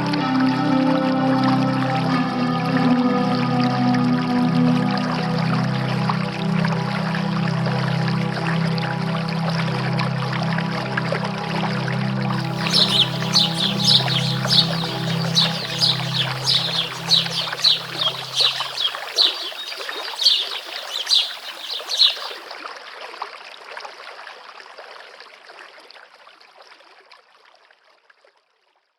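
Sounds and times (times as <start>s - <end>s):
bird chirping: 12.3s - 22.5s
creek running: 12.3s - 22.5s
small stream babbling: 12.3s - 22.5s
low music drone: 12.4s - 18.8s.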